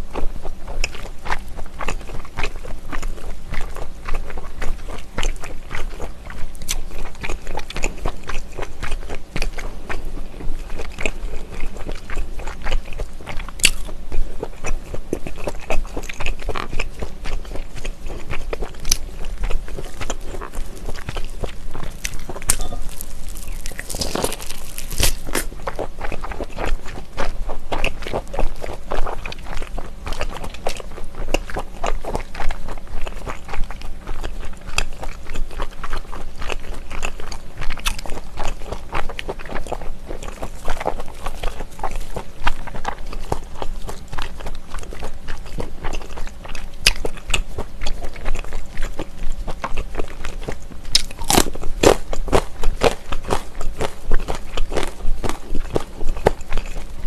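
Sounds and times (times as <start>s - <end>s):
crunchy bites into pepper: 20.0s - 25.8s, 50.9s - 53.4s.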